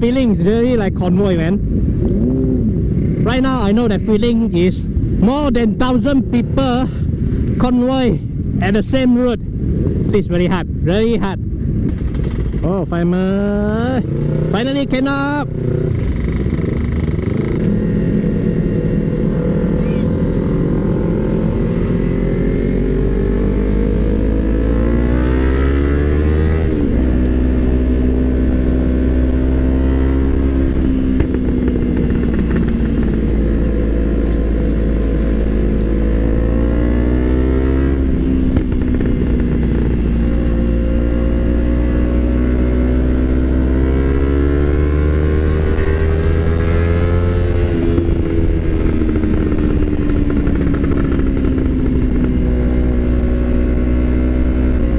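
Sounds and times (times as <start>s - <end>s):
motorcycle engine accelerating: 0.0s - 4.2s, 10.9s - 54.9s.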